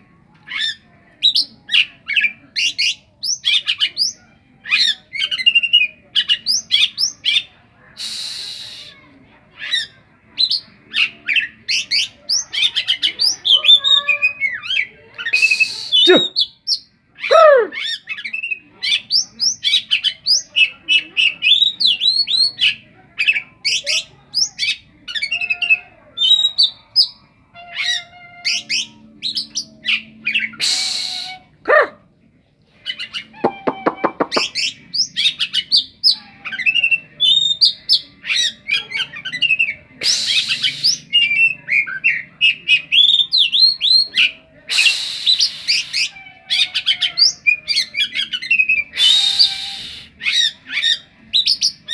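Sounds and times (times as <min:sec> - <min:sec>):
bird singing varied song: 0:00.3 - 0:32.0, 0:32.8 - 0:51.9
harsh rasping bird calls: 0:09.6 - 0:32.0, 0:32.8 - 0:51.9.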